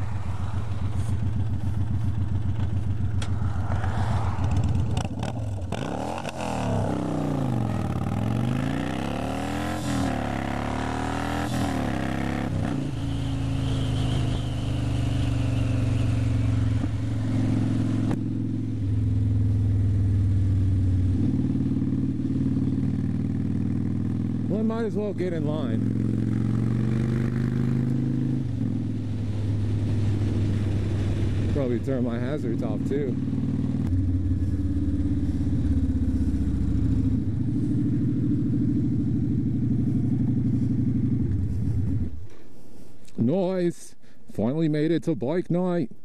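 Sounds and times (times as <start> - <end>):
wind rushing over microphone: 0.0 - 8.5
motorcycle engine running: 0.0 - 42.3.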